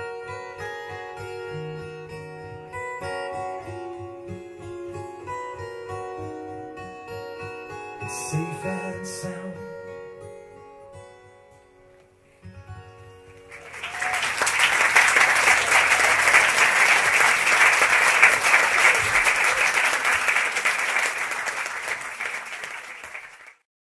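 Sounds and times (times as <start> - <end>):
audience applauding: 13.4 - 23.7.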